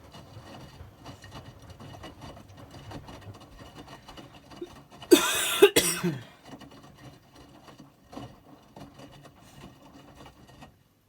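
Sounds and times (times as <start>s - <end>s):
washing machine rumbling: 0.0s - 11.0s
person coughing: 5.1s - 6.4s.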